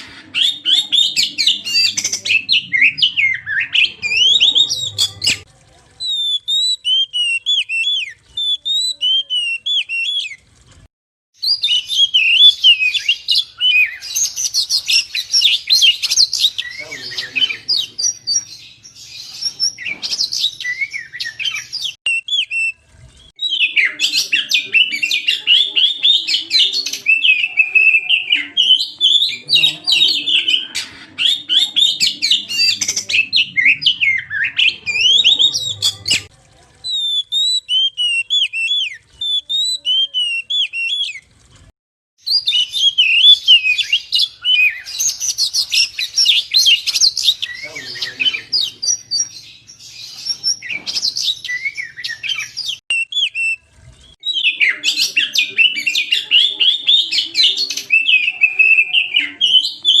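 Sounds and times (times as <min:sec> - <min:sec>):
bird singing whistles and chirps: 0:06.0 - 0:10.4, 0:11.4 - 0:36.3, 0:36.9 - 0:41.2, 0:42.2 - 0:53.6, 0:54.2 - 1:00.0.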